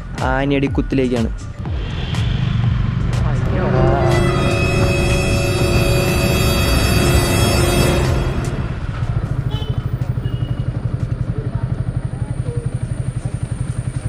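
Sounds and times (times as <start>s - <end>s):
music: 0.0s - 11.9s
motorcycle engine running: 1.5s - 14.0s.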